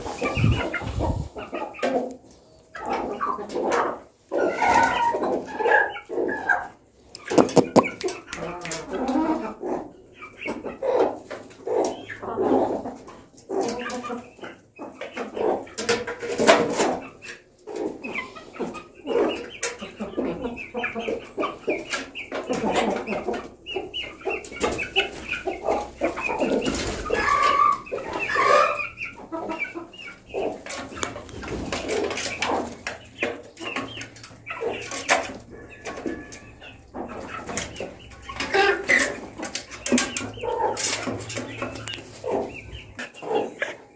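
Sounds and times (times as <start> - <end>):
chickens clucking: 0.0 - 43.9
sharp clicks: 7.2 - 8.4.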